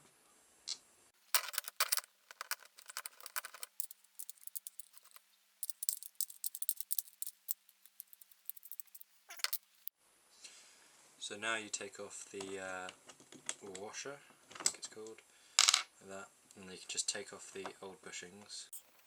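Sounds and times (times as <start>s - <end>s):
socket clinking on metal nut: 1.3s - 9.7s.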